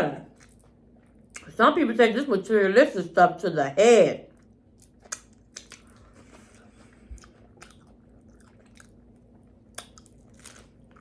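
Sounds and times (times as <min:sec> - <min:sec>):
person chewing food: 0:00.2 - 0:01.5, 0:04.3 - 0:11.0
wet mouth clicks: 0:05.0 - 0:06.0.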